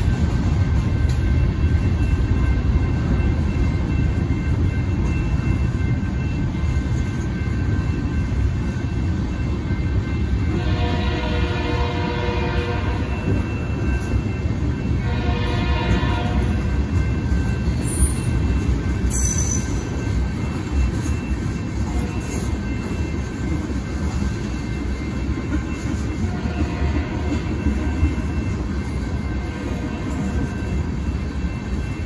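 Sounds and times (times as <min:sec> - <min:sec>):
crossing bells ringing: 0:00.0 - 0:32.0
train wheels rumbling on rails: 0:00.0 - 0:32.0
train horn: 0:10.5 - 0:13.3, 0:15.0 - 0:16.6, 0:26.2 - 0:27.6.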